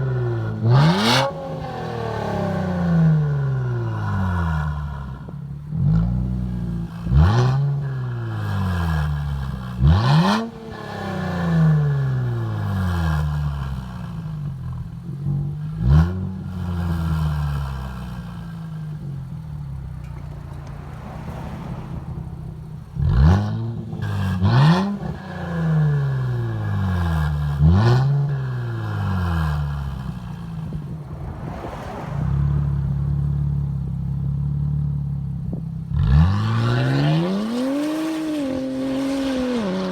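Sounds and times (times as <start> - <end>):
car engine revving: 0.0 - 39.9
car engine idling: 17.6 - 24.2, 28.6 - 35.9.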